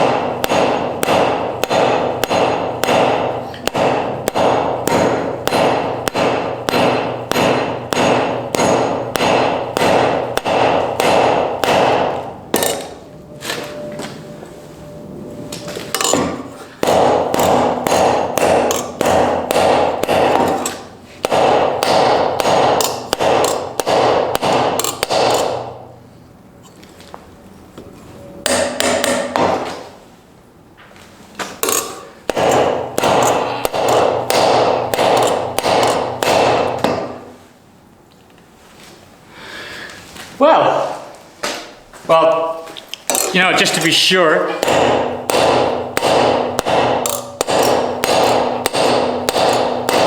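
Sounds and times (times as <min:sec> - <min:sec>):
hammer ringing on anvil: 0:00.0 - 0:14.1, 0:15.6 - 0:25.8, 0:28.3 - 0:29.7, 0:31.6 - 0:37.3, 0:44.5 - 0:50.0.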